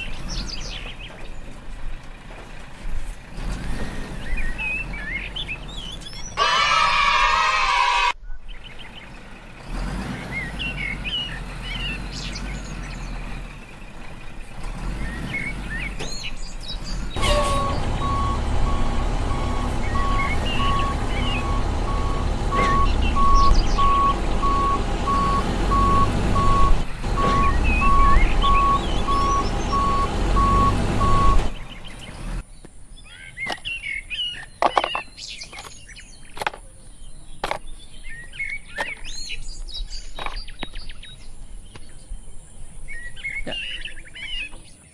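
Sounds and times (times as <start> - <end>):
truck engine running: 0.0 - 44.8
birds chirping: 0.0 - 44.9
reversing alarm beeping: 17.2 - 31.5.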